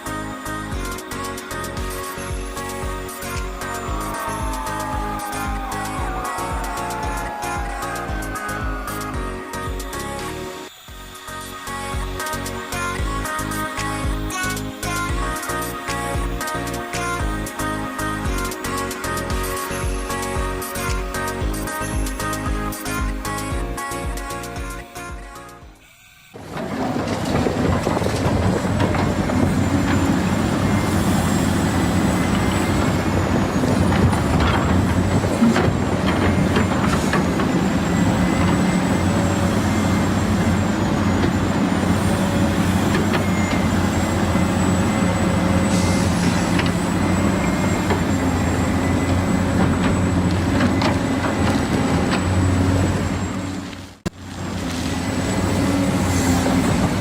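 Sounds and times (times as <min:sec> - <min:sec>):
thin high whine: 0:00.0 - 0:27.4.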